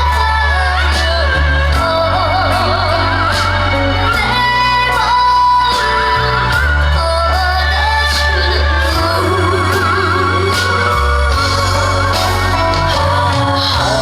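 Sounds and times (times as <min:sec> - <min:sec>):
backing track with heavy bass: 0:00.0 - 0:14.0
person singing with vibrato: 0:00.0 - 0:14.0.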